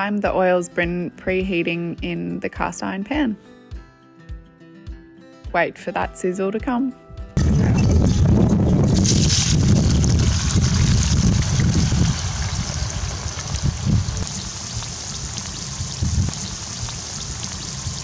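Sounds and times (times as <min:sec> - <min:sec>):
low rumble: 0:07.4 - 0:18.0
potatoes sizzling in hot oil: 0:07.4 - 0:18.0.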